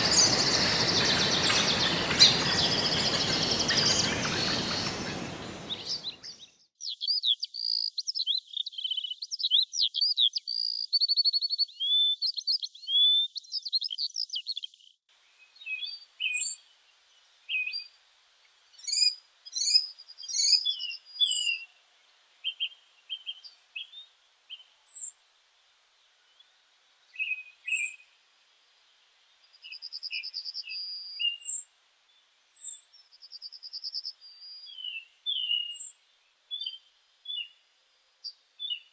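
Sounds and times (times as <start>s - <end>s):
broad rushing noise: 0.0s - 6.1s
bird chirps and trills: 0.0s - 9.2s, 15.4s - 16.8s, 18.7s - 21.8s, 22.4s - 25.2s, 27.1s - 28.1s, 29.5s - 31.7s, 32.5s - 37.6s
bird warbling song: 0.0s - 18.0s, 18.7s - 25.2s, 27.1s - 28.2s, 29.4s - 37.6s, 38.2s - 38.9s.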